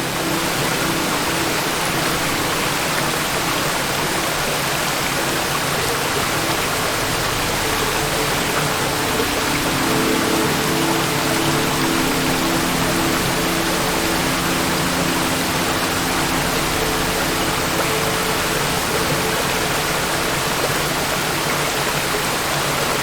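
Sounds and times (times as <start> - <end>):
waterfall roaring: 0.0 - 23.0.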